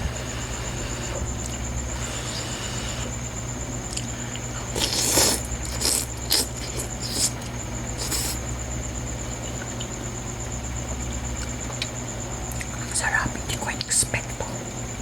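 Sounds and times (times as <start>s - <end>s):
steady low hum: 0.0s - 15.0s
eating noises: 3.9s - 8.4s.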